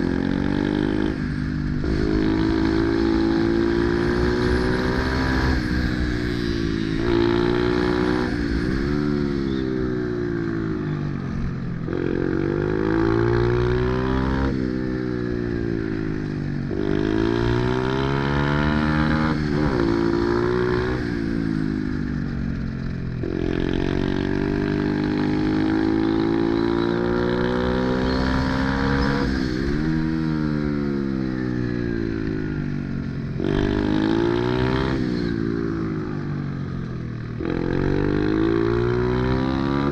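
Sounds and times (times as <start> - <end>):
pit bike engine revving: 0.0 - 9.2, 23.2 - 31.0.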